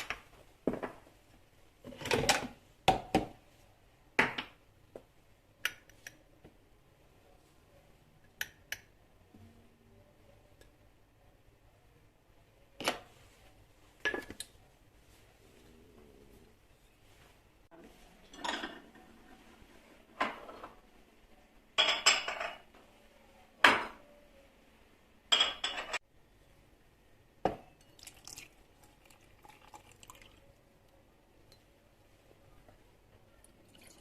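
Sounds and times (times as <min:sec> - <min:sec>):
dishes and cutlery clinking: 0:18.2 - 0:19.2, 0:21.8 - 0:22.7, 0:25.3 - 0:26.0.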